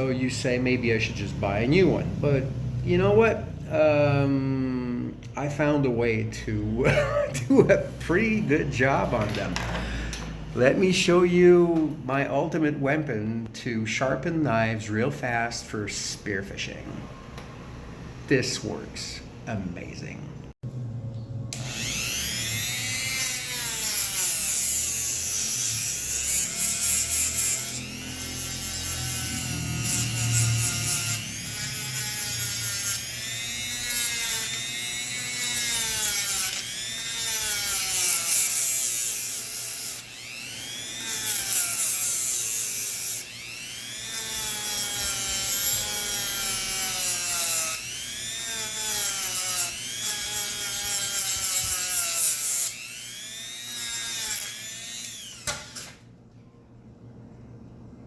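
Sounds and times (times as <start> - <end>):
power tool sharpening knife: 21.5 - 56.0.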